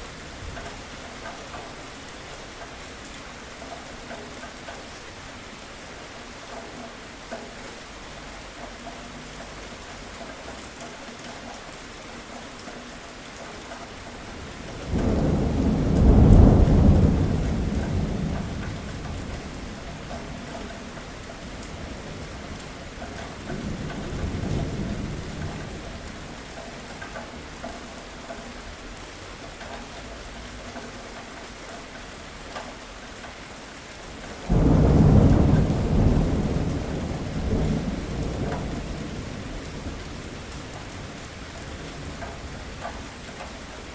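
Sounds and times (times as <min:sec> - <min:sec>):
steady rain falling: 0:00.0 - 0:43.9
rolling thunder: 0:14.4 - 0:26.4, 0:34.4 - 0:42.7.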